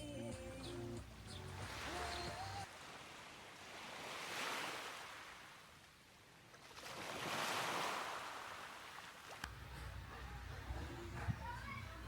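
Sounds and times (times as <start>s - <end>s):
waves washing onto beach: 1.5s - 9.4s.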